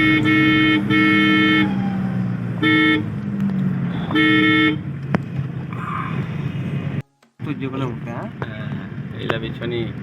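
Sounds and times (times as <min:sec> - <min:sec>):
car horn honking: 0:00.0 - 0:01.7, 0:02.6 - 0:03.1, 0:04.0 - 0:04.9
car engine drone: 0:00.0 - 0:10.0
road noise: 0:00.0 - 0:10.0.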